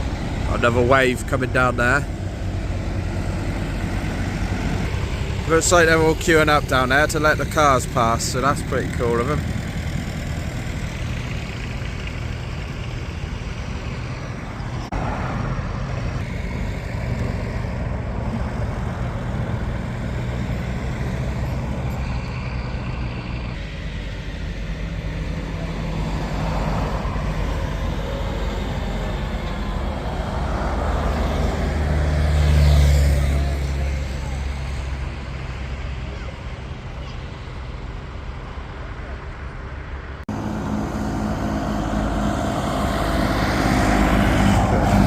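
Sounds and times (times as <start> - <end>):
tractor engines droning: 0.0 - 45.0.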